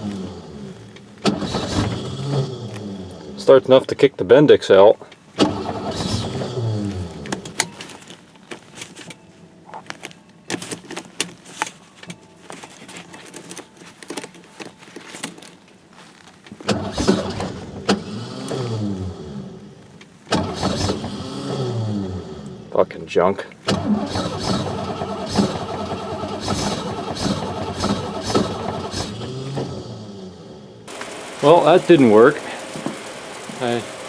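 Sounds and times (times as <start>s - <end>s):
truck starter whirring: 0.0s - 3.8s, 5.4s - 7.8s, 16.6s - 22.8s, 23.6s - 34.0s.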